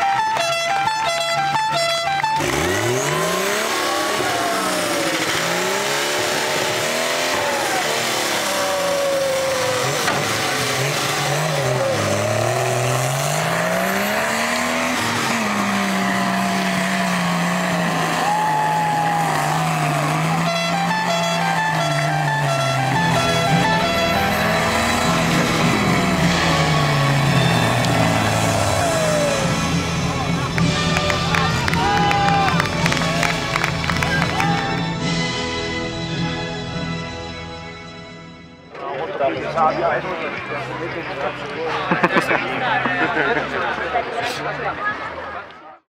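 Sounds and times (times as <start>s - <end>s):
car engine revving hard: 1.5s - 34.8s.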